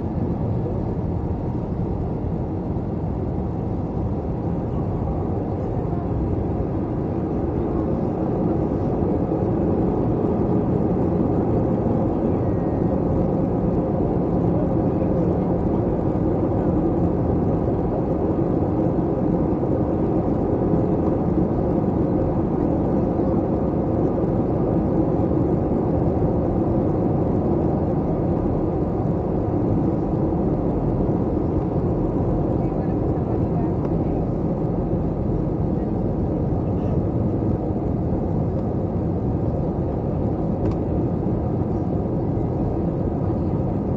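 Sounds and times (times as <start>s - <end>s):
airplane cabin engine noise: 0.0s - 43.9s.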